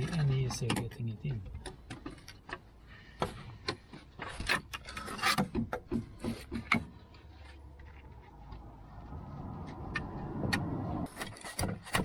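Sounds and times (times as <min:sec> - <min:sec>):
metal knocks and clunks: 0:00.0 - 0:07.1.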